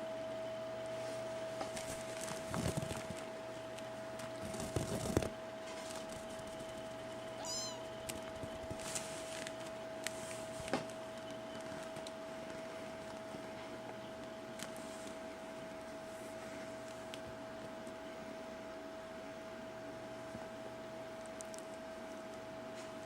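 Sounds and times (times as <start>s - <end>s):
steady high hum: 0.0s - 23.0s
kitten mewing: 7.4s - 7.9s.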